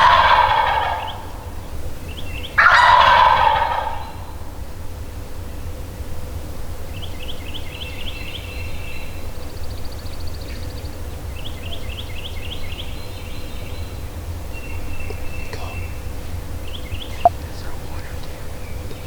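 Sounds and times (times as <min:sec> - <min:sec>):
songbird singing: 0:00.0 - 0:02.7, 0:06.9 - 0:19.0.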